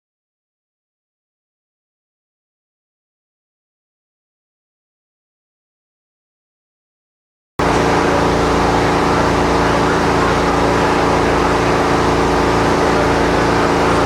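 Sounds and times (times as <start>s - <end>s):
engine running steadily: 7.6s - 14.0s.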